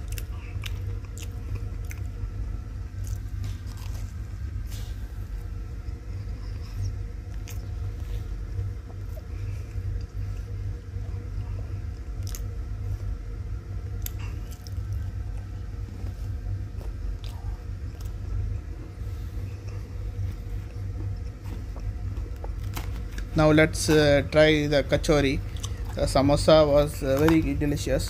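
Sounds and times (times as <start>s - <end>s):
biting and chewing fried food: 0.0s - 28.0s
steady low hum: 0.0s - 28.0s
sharp crunches and clicks: 24.9s - 28.0s.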